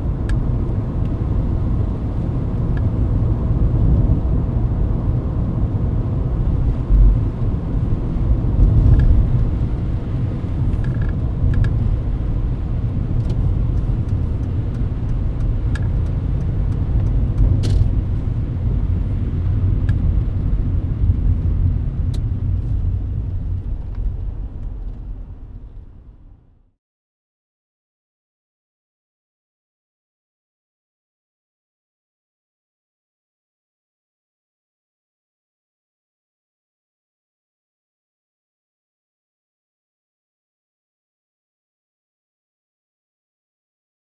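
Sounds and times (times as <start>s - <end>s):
car engine and tyres rumbling: 0.0s - 26.8s.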